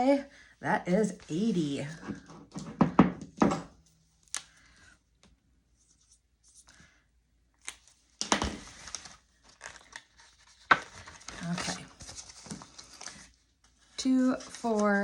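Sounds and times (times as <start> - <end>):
paper and plastic rustling: 7.7 - 15.0.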